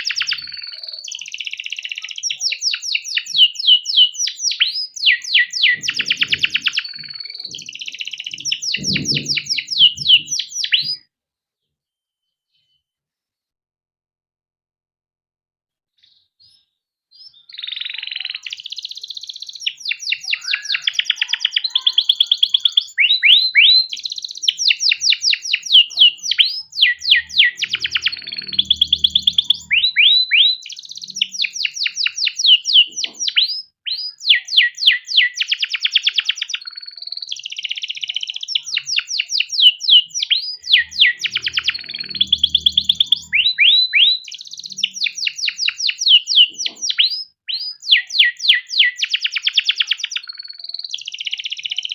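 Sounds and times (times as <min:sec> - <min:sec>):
canary singing trills: 0:00.0 - 0:11.0, 0:16.0 - 0:51.9
faint low rumble: 0:41.5 - 0:43.8.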